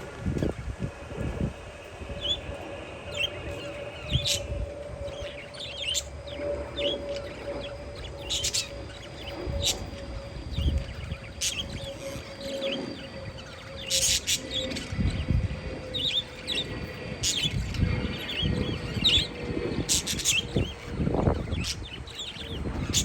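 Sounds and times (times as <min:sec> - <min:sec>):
steady low hum: 0:00.0 - 0:23.0
wind rumbling on microphone: 0:00.0 - 0:23.0
parakeets chirping: 0:02.0 - 0:23.0.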